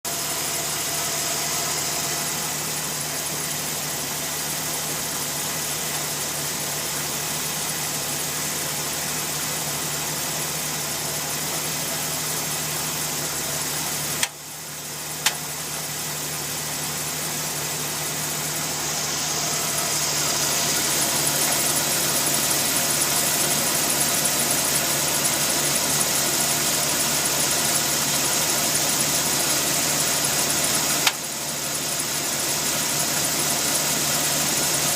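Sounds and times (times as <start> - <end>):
truck engine running: 0.0 - 34.9
sharp click: 15.2 - 15.4
exhaust crackling: 17.2 - 27.9.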